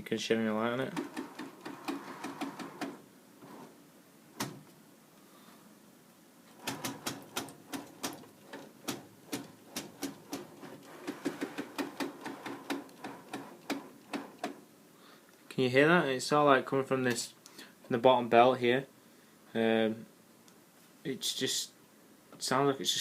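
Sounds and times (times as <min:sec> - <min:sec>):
printer clicking: 0:01.0 - 0:03.6, 0:04.4 - 0:04.6, 0:06.5 - 0:14.6.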